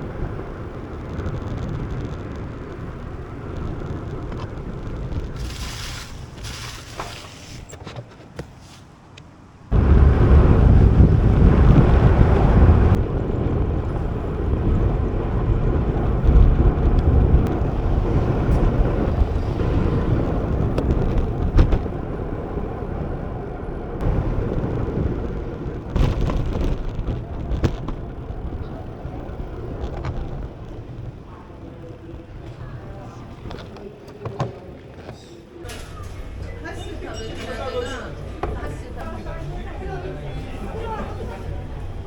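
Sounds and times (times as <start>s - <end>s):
wind buffeting microphone: 0.0s - 7.7s, 9.6s - 42.0s.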